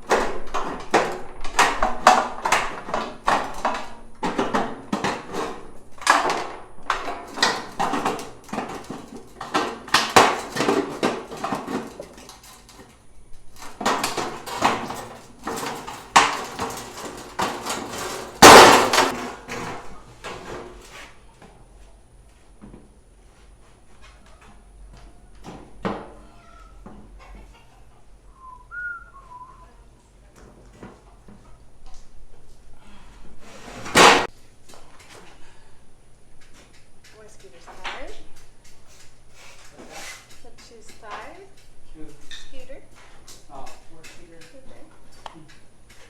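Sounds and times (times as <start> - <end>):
loud clatter: 13.6 - 19.8
hammering on wood: 13.8 - 19.2.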